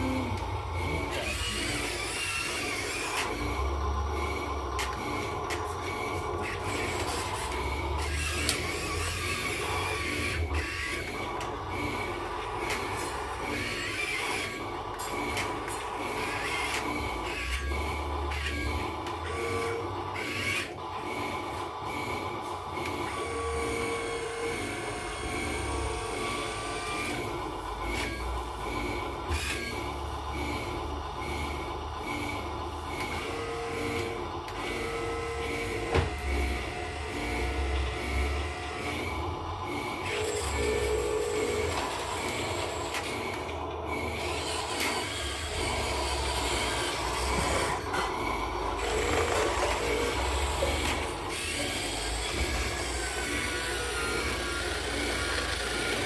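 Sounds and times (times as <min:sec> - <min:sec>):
machine low rumble: 0:00.0 - 0:13.5
machinery humming: 0:00.0 - 0:56.0.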